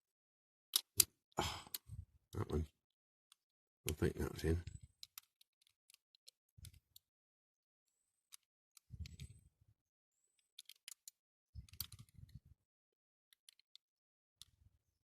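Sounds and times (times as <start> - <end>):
toy car parts clicking: 0.7 - 1.1, 5.0 - 7.1, 8.3 - 9.3, 10.4 - 12.4, 13.3 - 14.5.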